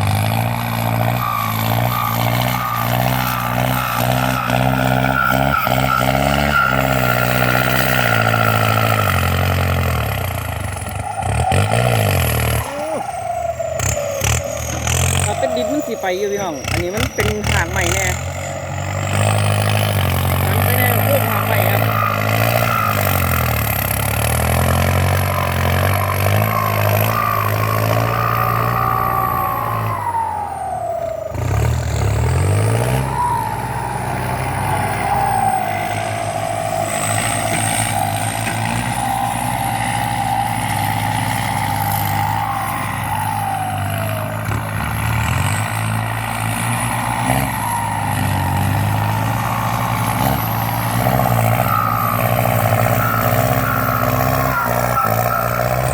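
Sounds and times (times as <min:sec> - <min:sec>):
tractor diesel engine under load: 0:00.0 - 0:55.9
turbocharger whistle: 0:00.0 - 0:55.9.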